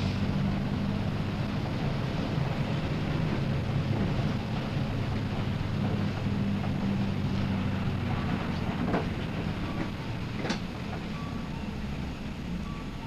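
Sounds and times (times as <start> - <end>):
bus engine running: 0.0 - 13.0.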